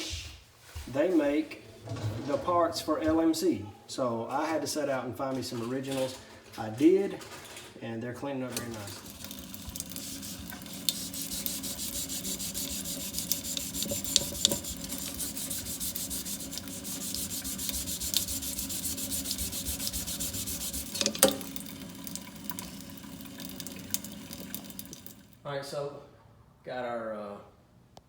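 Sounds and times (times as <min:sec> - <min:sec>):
scrubbing metal by hand: 0:08.7 - 0:21.5.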